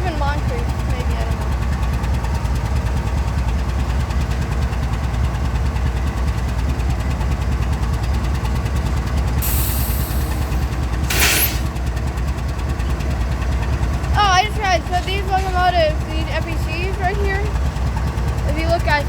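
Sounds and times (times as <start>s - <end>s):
locomotives idling: 0.0s - 19.0s
high air hiss: 9.4s - 11.7s
loud blast of released air: 9.4s - 11.7s.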